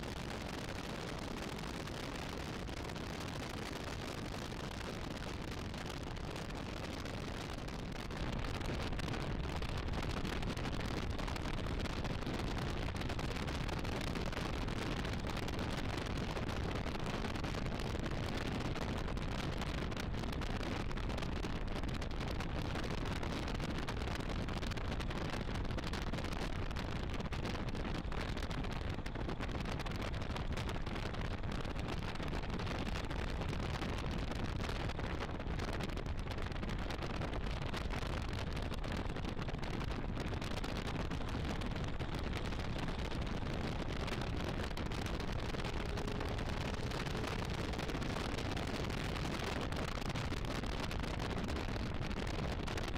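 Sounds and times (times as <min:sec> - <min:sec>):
wind buffeting microphone: 0:00.1 - 0:52.9
car engine at speed: 0:41.7 - 0:51.0.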